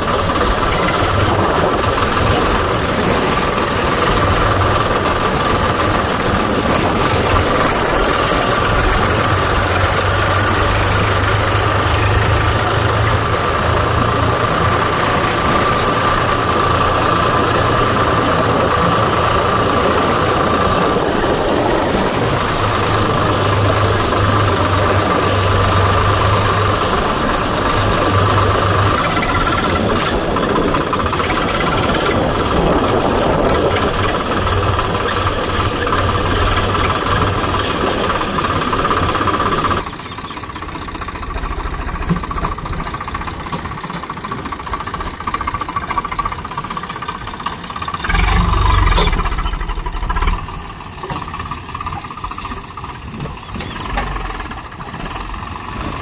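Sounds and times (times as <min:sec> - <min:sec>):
diesel engines running: 0:00.0 - 0:56.0
low rumble: 0:48.0 - 0:50.9.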